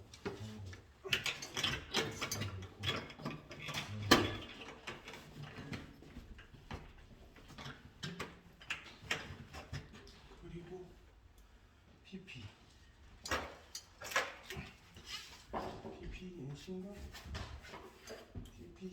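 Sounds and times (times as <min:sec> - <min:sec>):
tools and small parts clattering: 0:00.0 - 0:10.4, 0:13.1 - 0:16.1, 0:17.1 - 0:18.8.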